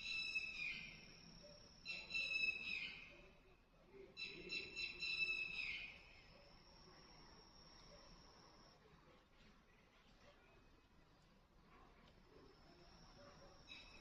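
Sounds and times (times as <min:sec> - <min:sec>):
faint steady high tone: 0:00.0 - 0:09.0, 0:12.3 - 0:14.0.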